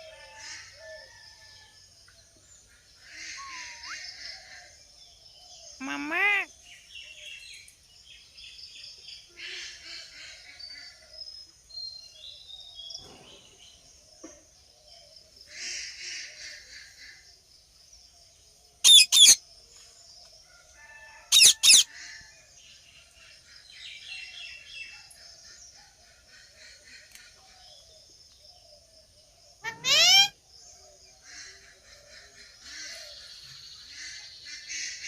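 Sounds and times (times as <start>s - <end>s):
faint bird chirping: 0.0s - 22.0s, 22.7s - 35.0s
parrot screeching: 3.2s - 4.0s, 18.8s - 19.4s, 21.3s - 21.9s, 29.6s - 30.3s.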